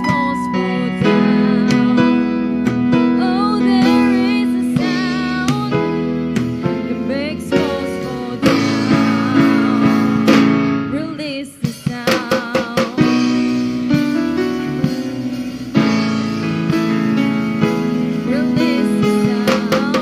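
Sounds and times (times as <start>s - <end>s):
band with guitar and drums: 0.0s - 20.0s
drum hits: 0.0s - 20.0s
choir singing worship song: 7.5s - 10.6s.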